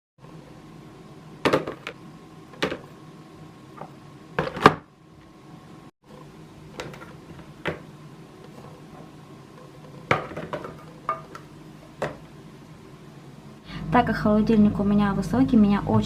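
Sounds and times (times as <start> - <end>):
steady low hum: 0.2 - 16.0
containers clacking and knocking: 9.9 - 11.4.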